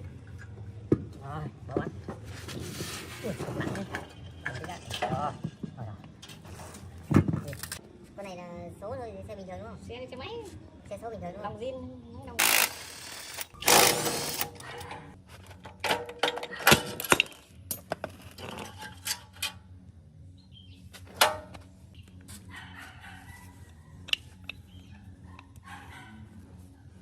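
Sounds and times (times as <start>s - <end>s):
loud rasping burst: 12.4s - 14.6s.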